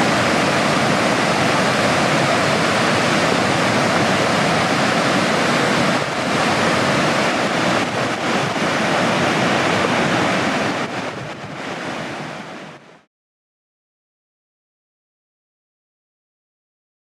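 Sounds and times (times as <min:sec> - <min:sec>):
wind buffeting microphone: 0:00.0 - 0:12.9
river rushing: 0:00.0 - 0:13.1.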